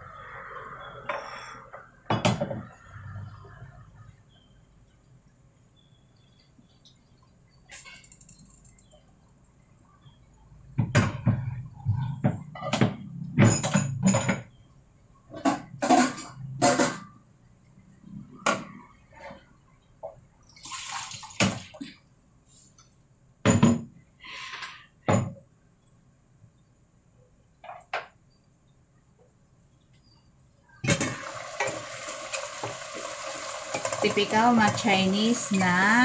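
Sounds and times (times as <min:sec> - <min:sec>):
utensils clattering against pots: 0:12.5 - 0:14.5, 0:15.3 - 0:17.1, 0:30.8 - 0:36.0.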